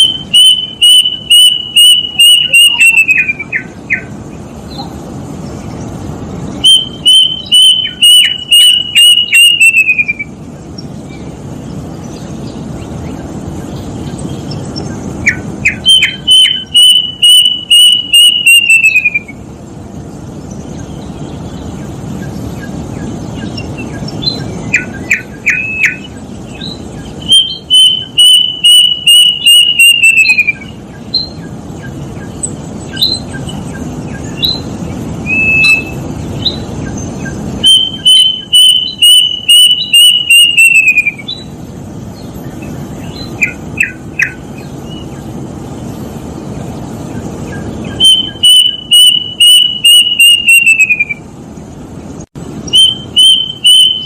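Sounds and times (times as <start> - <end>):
cuckoo whistled notes: 0.0 - 4.1, 6.6 - 10.4, 15.7 - 19.4, 27.2 - 31.4, 35.2 - 36.0, 37.6 - 41.4, 47.9 - 51.2, 52.7 - 54.0
steady background hiss: 0.0 - 54.0.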